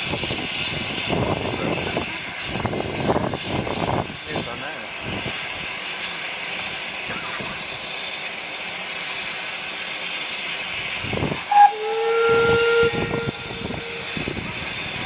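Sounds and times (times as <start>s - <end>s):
steam locomotive hissing: 0.0s - 15.0s
steam whistle: 11.3s - 15.0s.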